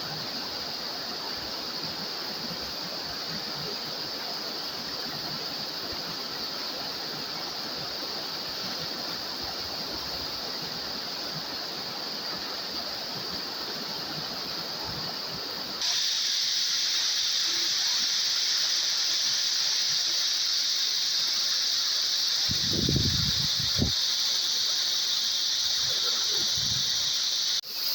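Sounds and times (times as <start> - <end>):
waterfall rushing: 15.2 - 27.9.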